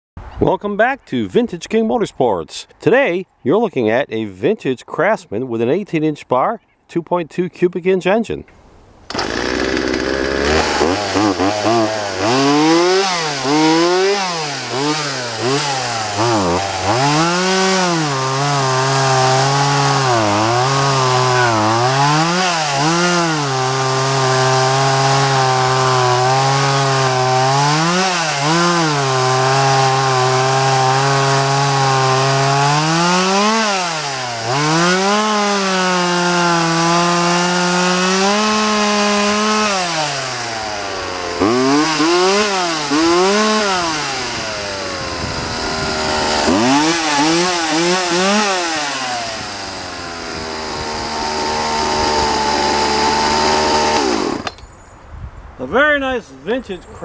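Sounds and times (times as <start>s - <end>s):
chainsaw running: 9.1s - 54.6s.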